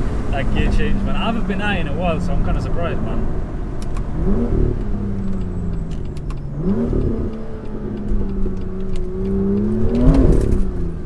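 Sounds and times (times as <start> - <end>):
car engine revving in cabin: 0.0 - 11.0.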